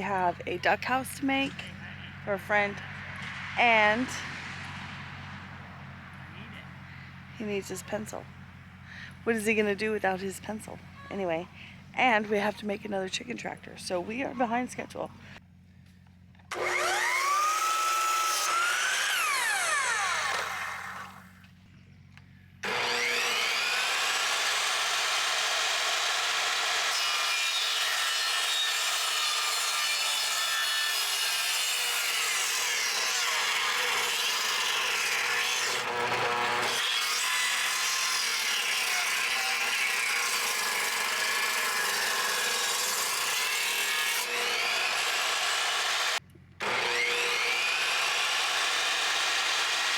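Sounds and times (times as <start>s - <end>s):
electric power saw cutting wood: 16.5s - 21.4s, 22.6s - 49.9s.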